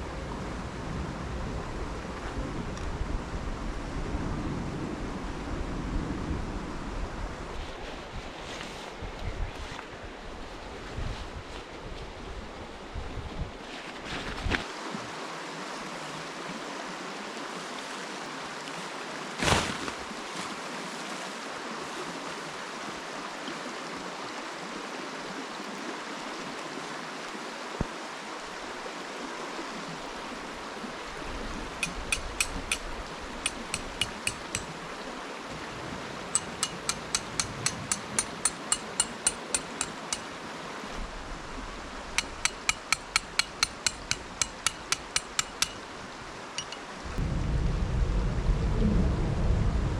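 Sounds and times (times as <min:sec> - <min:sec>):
flowing stream: 0:00.0 - 0:47.3
hammer striking metal stakes: 0:31.8 - 0:34.7, 0:36.3 - 0:40.3, 0:42.2 - 0:45.9, 0:46.6 - 0:46.9.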